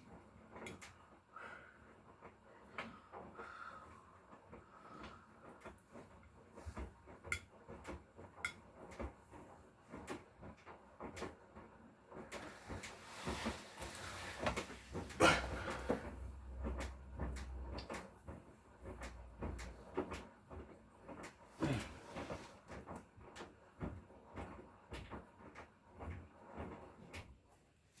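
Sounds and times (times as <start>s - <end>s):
washing machine hum: 0.0s - 28.0s
washing machine knocks and clunks: 5.6s - 27.4s.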